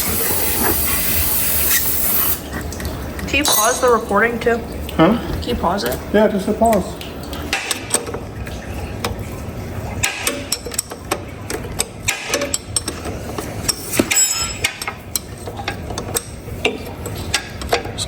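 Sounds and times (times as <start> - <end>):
metal tools clicking and clinking: 3.4 - 4.0, 13.7 - 16.3.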